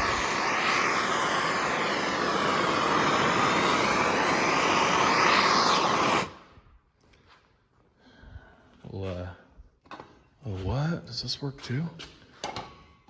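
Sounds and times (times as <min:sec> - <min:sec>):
heat gun blowing air: 0:00.0 - 0:06.6.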